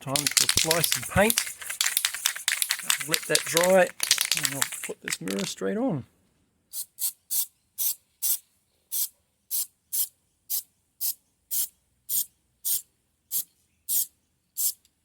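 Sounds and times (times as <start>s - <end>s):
spray paint can hissing: 0.1s - 5.5s, 6.8s - 10.1s, 11.5s - 14.8s.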